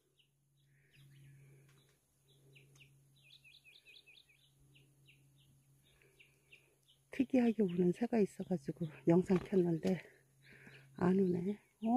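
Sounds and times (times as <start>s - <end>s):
steady low hum: 0.0s - 11.9s
bird whistling song: 2.8s - 5.5s.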